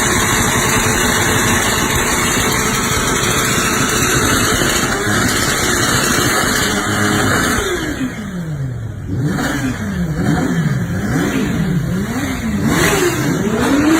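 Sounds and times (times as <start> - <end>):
motorcycle engine revving: 0.0 - 13.9.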